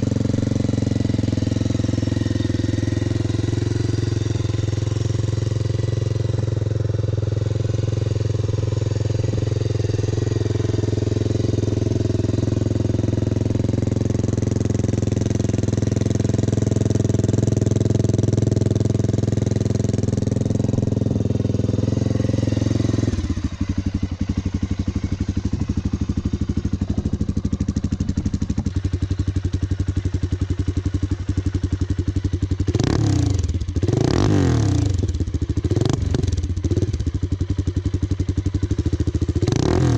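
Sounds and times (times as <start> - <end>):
engine revving: 0.0 - 25.6, 32.6 - 37.2, 38.6 - 39.9
motorcycle engine idling: 0.0 - 39.9.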